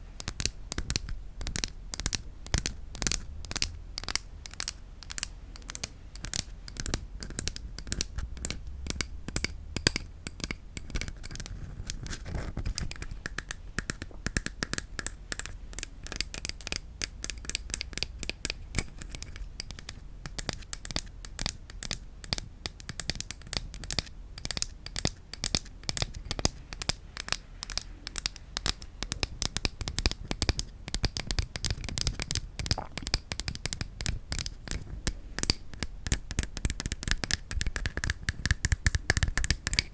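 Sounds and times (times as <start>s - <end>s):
wooden objects tapped rapidly: 35.4s - 39.9s.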